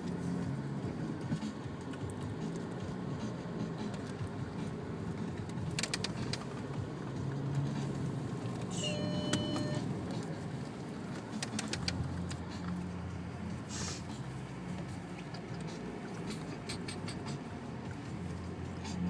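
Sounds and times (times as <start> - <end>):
car engine drone: 0.0 - 19.0
clicks and ticks: 5.3 - 6.8, 11.2 - 12.8.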